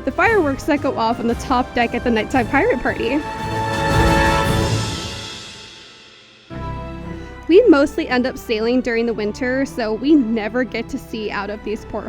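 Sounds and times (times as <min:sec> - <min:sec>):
deep steady bass: 0:00.0 - 0:05.2
background music: 0:00.0 - 0:12.0.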